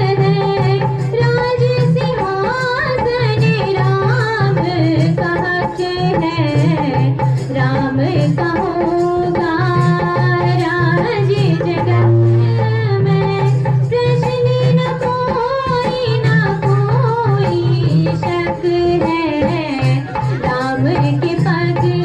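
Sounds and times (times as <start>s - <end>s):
girl singing devotional song: 0.0s - 22.0s
pulsing instrumental accompaniment: 0.0s - 22.0s.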